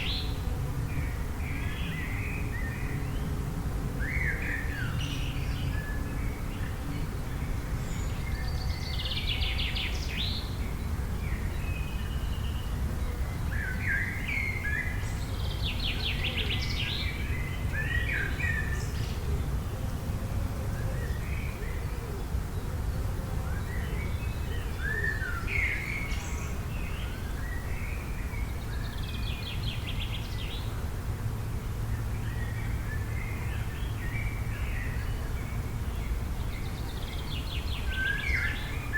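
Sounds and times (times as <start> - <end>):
songbirds chirping and singing: 31.8 - 38.9.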